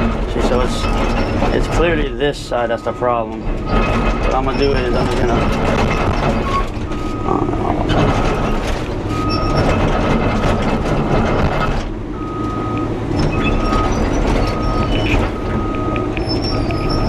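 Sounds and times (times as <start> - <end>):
excavator engine under load: 0.0 - 17.0
steel tracks clanking: 0.0 - 17.0
travel alarm beeping: 6.5 - 9.8, 12.2 - 17.0.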